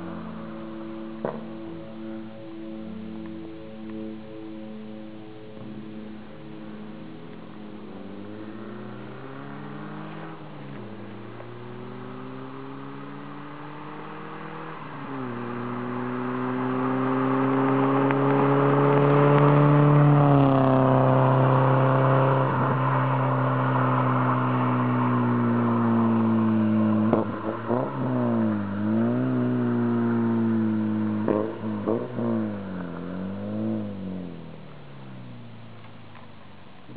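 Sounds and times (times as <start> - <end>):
car engine under throttle: 0.0 - 36.9.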